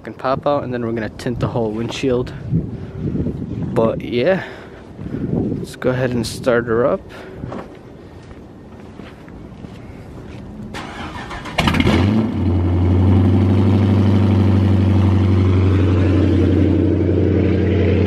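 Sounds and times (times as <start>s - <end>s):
car engine cranking and idling: 10.6s - 18.0s.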